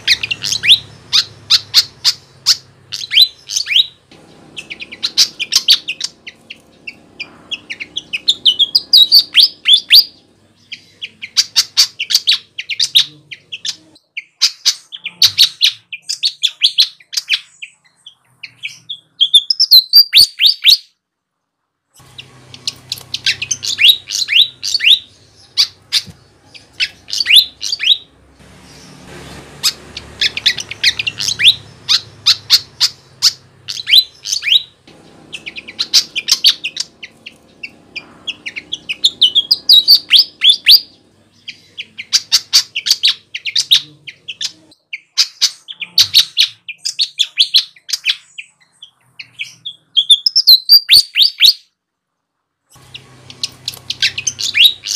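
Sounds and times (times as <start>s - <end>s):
bird singing high chirps: 0.0s - 21.0s, 22.0s - 51.7s, 52.8s - 54.9s.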